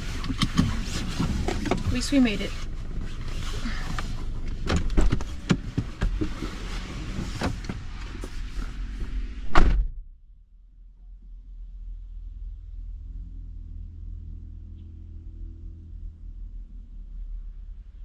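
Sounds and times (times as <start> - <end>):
car door slamming: 4.6 - 6.4, 9.4 - 10.0.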